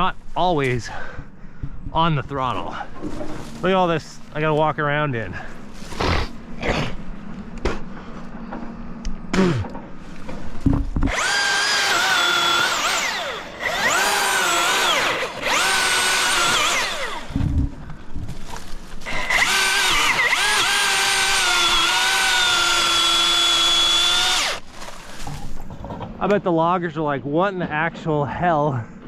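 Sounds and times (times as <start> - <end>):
electric chainsaw cutting wood: 11.0 - 17.6, 19.0 - 25.0.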